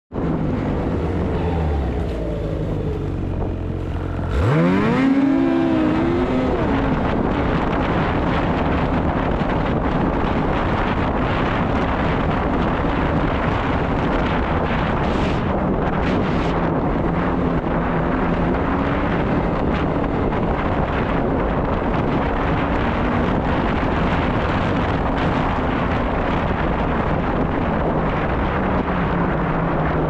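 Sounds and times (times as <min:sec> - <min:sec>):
wind noise on microphone: 0:00.1 - 0:30.0
snowmobile engine revving: 0:00.4 - 0:08.4.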